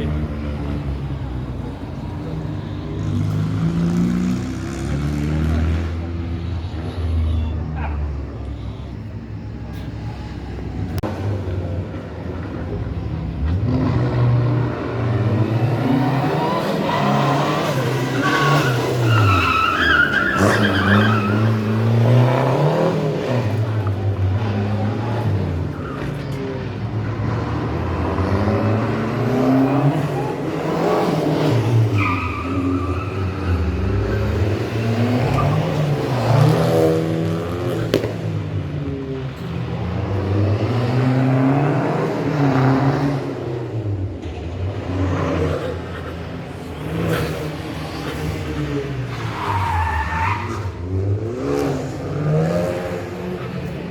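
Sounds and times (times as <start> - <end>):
rally car engine revving: 0.0 - 8.3, 10.6 - 53.9
tyre squeal: 15.9 - 22.3, 29.6 - 36.3, 45.5 - 50.9.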